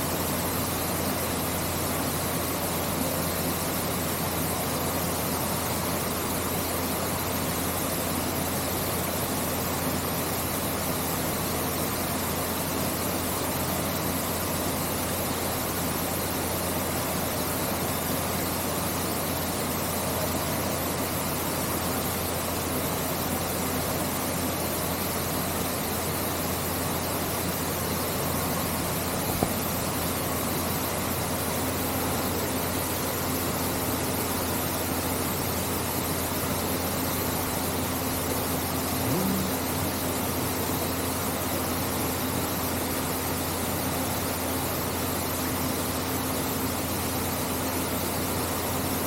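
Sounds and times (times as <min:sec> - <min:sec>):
low hum: 0:39.0 - 0:39.9.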